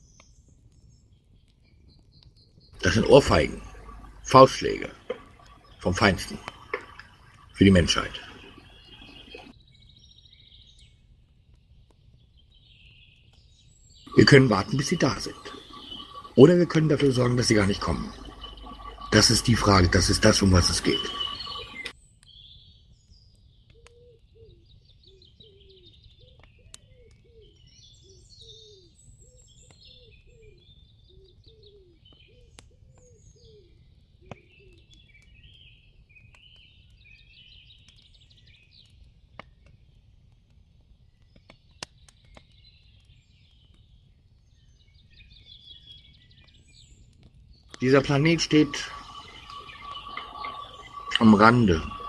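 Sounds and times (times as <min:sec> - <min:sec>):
songbirds chirping: 0:00.0 - 0:40.0, 0:41.0 - 0:52.0
low falling bird call: 0:02.8 - 0:09.5, 0:14.1 - 0:21.9, 0:47.8 - 0:52.0.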